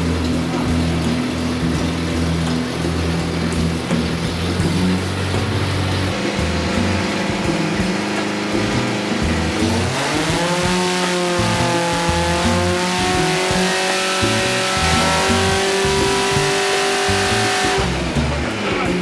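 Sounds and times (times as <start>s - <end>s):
car engine revving on dyno: 0.0s - 19.0s
music: 0.0s - 19.0s.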